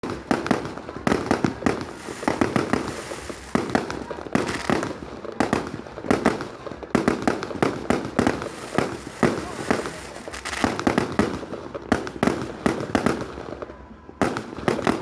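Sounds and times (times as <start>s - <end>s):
fireworks bangs and pops: 0.0s - 15.0s.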